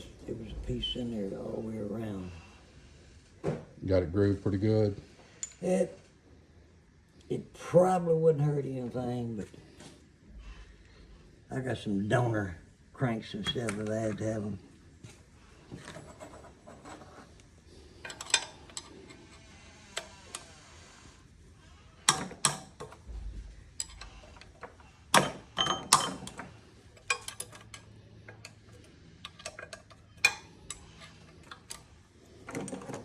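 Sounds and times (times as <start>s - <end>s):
metal tools clinking: 5.4s - 5.7s, 13.2s - 14.5s, 18.0s - 19.3s, 23.7s - 33.0s.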